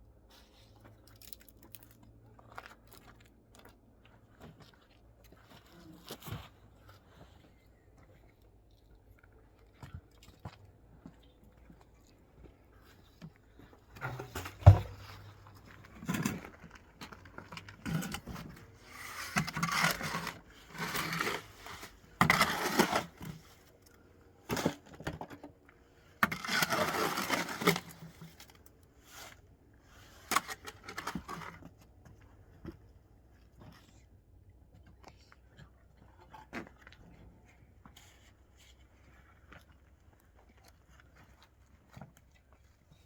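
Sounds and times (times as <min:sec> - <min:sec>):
blocks scraping and knocking: 0:13.8 - 0:23.8, 0:24.4 - 0:28.6.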